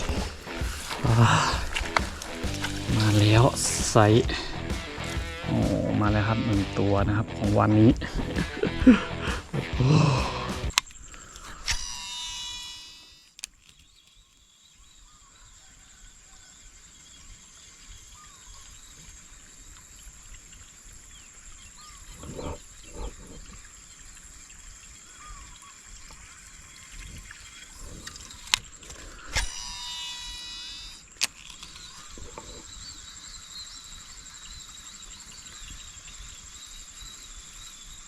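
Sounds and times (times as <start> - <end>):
faint chirps: 0.0 - 6.9, 7.6 - 38.0
insect drone: 0.0 - 38.0
brief buzzing tone: 11.7 - 13.4, 29.4 - 31.0.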